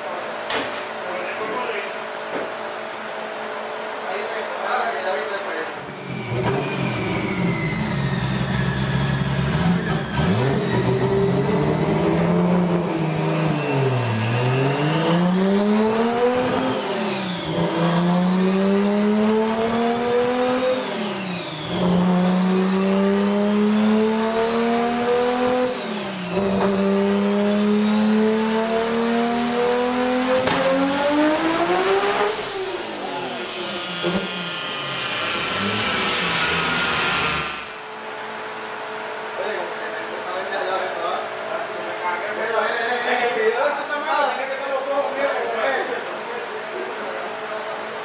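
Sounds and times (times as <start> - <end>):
car engine revving at full throttle: 5.8 - 39.8.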